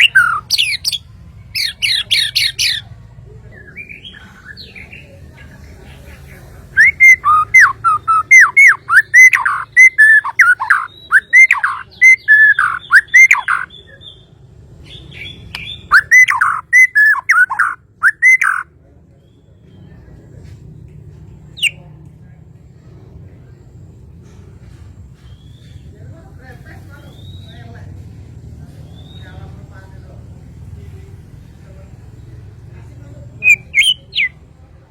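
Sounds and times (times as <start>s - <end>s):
bird singing loud whistled notes: 0.0s - 2.9s, 6.7s - 18.6s, 33.4s - 34.4s.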